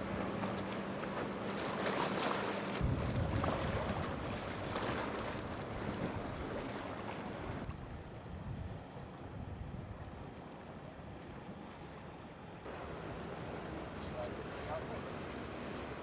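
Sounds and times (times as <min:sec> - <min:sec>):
boat engine running: 0:00.0 - 0:07.7, 0:12.7 - 0:16.0
surf: 0:00.0 - 0:07.7, 0:12.6 - 0:16.0
wind on the microphone: 0:02.8 - 0:06.7, 0:07.4 - 0:10.3.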